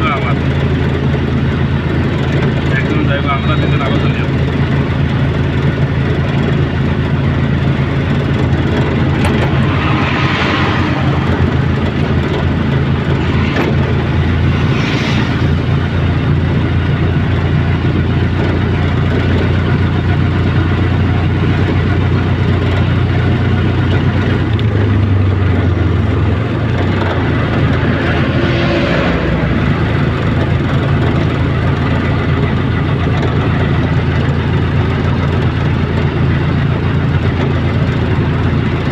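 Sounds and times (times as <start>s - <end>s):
low engine drone: 0.0s - 38.9s
high hissing swells: 12.8s - 16.3s.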